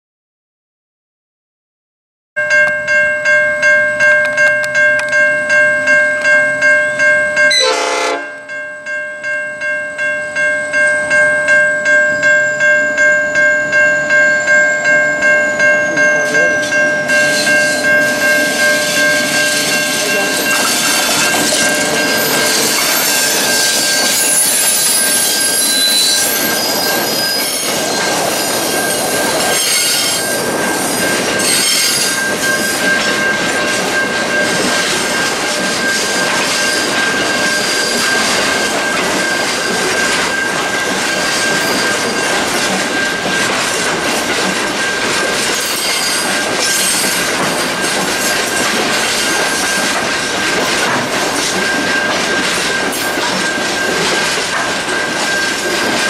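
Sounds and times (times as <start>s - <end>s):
level-crossing bell ringing: 2.4s - 56.0s
train wheels clattering on rails: 13.6s - 56.0s.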